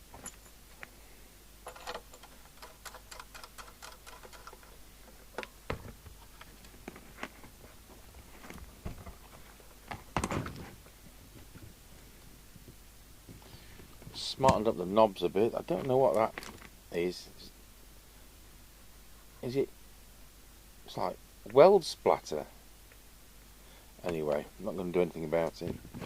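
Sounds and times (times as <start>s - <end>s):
radio parts clicking and tapping: 1.6s - 7.6s.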